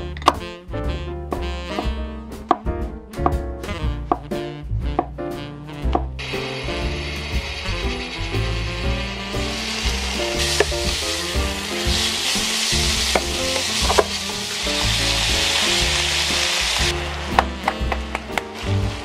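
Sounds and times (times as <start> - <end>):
meat sizzling in a pan: 6.2 - 19.0.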